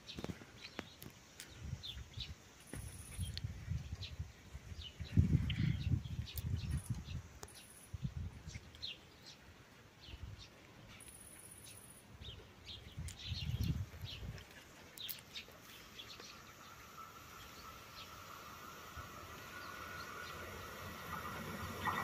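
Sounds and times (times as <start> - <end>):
small birds chirping: 0.0 - 22.0
faint steady whine: 15.4 - 22.0.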